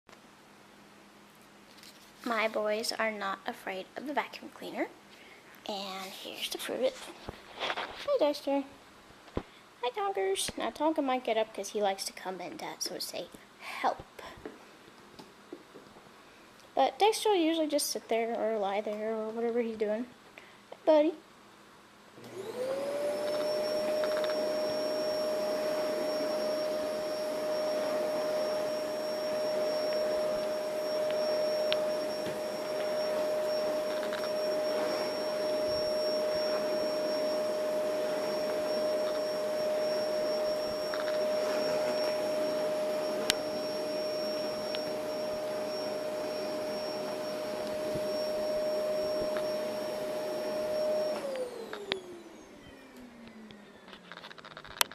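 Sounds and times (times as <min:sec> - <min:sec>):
vacuum cleaner clicks: 0:22.2 - 0:24.6, 0:33.7 - 0:34.6
vacuum motor spinning down: 0:22.2 - 0:54.0
vacuum cleaner motor whining: 0:22.2 - 0:54.3.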